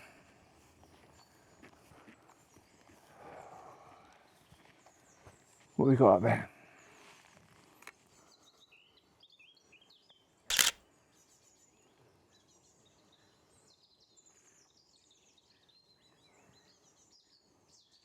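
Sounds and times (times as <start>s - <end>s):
loud burst of clicks: 10.5s - 10.8s.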